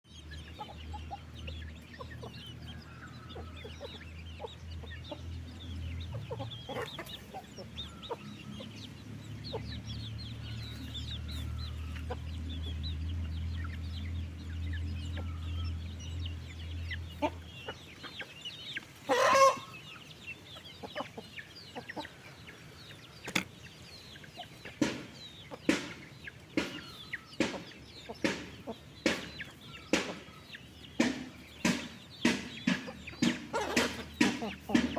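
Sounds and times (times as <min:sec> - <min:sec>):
chickens clucking and chirping: 0:00.0 - 0:34.9
chicken squawk: 0:19.0 - 0:20.0.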